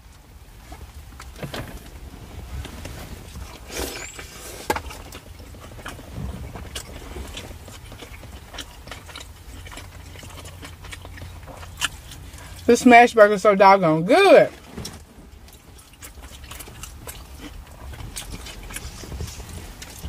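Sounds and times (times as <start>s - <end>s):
low steady rumble: 0.0s - 20.0s
people chewing food: 2.7s - 12.7s, 14.8s - 20.0s.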